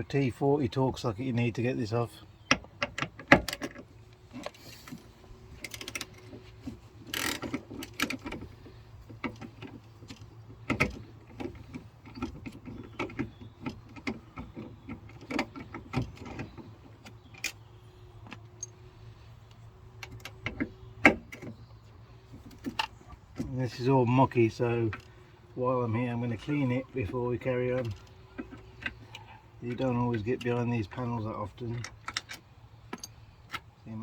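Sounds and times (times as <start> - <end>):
ratchet clicking on bolts: 7.1 - 8.4.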